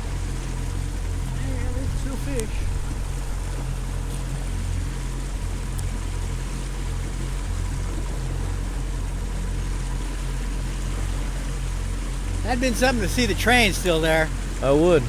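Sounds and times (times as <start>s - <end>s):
motorboat engine running: 0.0s - 15.0s
water wash: 0.0s - 15.0s.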